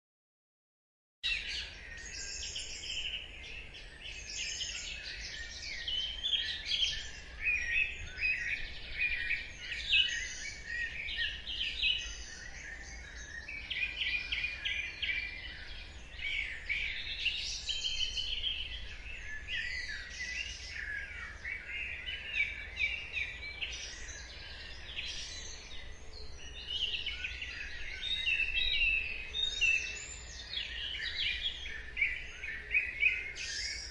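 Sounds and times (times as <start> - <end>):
birds singing and chirping: 1.2 - 33.9.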